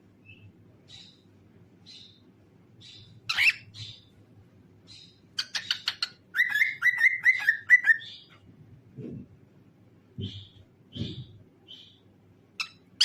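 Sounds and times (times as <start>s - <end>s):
cockatiel chirping: 2.8s - 4.1s, 4.9s - 8.4s
cockatiel squawk: 5.4s - 8.0s.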